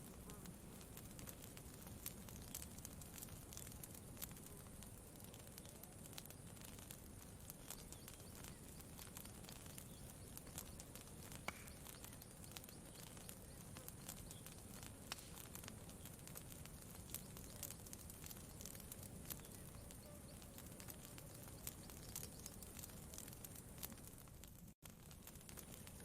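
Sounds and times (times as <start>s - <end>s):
campfire crackling: 0.0s - 26.0s.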